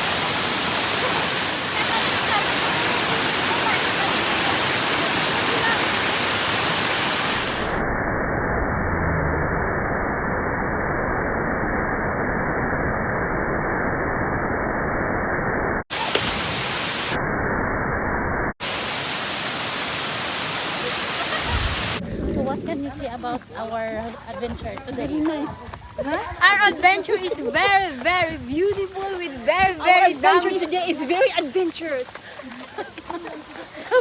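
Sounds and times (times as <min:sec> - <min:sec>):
waterfall rushing: 0:00.0 - 0:07.8, 0:15.9 - 0:17.2, 0:18.6 - 0:22.6, 0:26.7 - 0:34.0.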